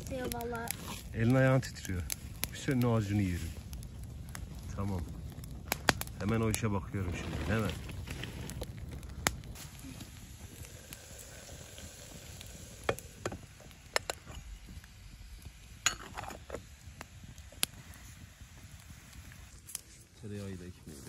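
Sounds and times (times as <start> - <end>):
wood fire crackling: 0.0 - 21.0
sharp pops: 5.6 - 6.6.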